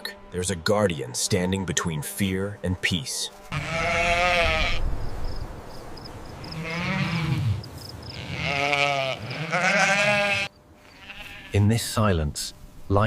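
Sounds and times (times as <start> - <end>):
sheep bleating: 3.4 - 4.9, 6.5 - 11.7.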